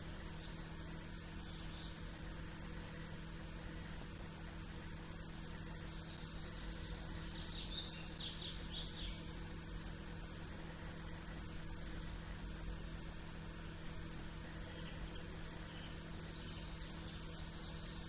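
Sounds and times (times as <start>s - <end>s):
songbird chirping: 0.0s - 2.1s, 5.9s - 9.4s, 14.5s - 18.0s
low background hum: 0.0s - 18.0s.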